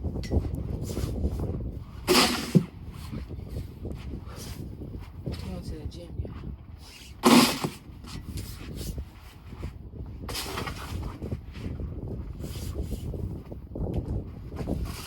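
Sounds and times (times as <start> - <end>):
wind rumble on microphone: 0.0 - 15.0
snow shovel scraping: 2.0 - 2.7, 6.8 - 9.0, 10.3 - 11.1.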